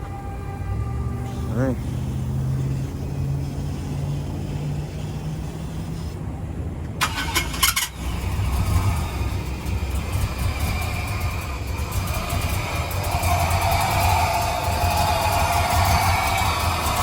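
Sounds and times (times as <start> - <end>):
engine running low rumble: 0.0 - 17.0
vehicle engine cranking and starting: 6.8 - 17.0.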